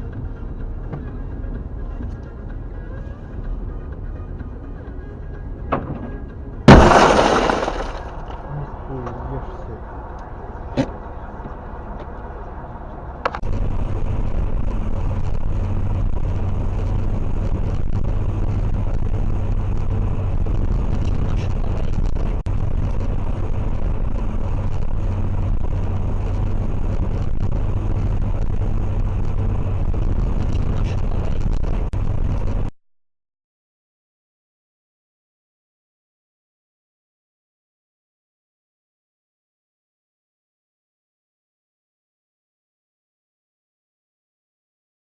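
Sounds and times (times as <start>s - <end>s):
car road and engine rumble: 0.0s - 32.7s.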